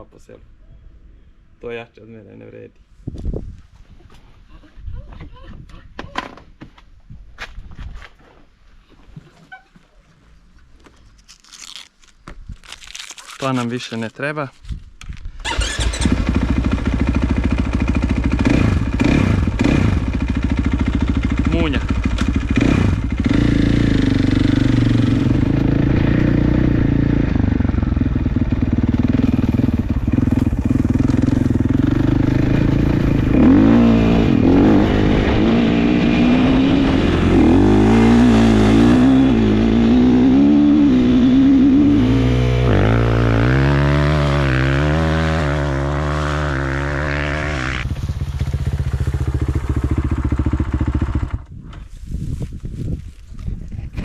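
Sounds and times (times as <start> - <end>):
motorcycle engine revving: 15.4 - 51.6.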